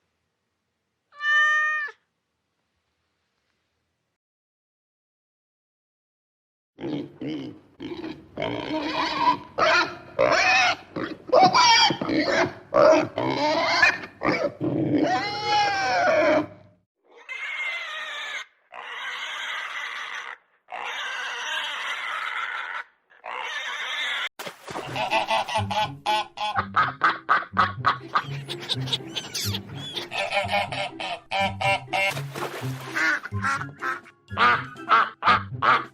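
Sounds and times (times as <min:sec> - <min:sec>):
pigs grunting and squealing: 0:06.8 - 0:24.3.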